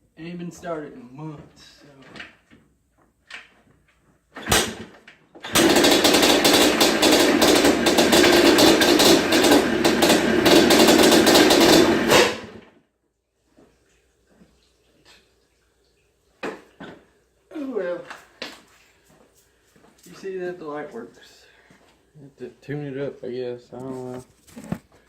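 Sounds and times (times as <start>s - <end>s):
two-stroke engine popping: 5.4s - 12.6s.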